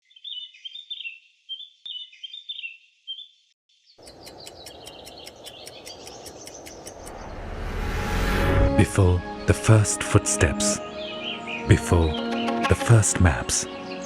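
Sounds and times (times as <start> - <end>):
birds singing: 0.0 - 7.5, 10.4 - 14.0
fast high ticks: 4.0 - 7.2.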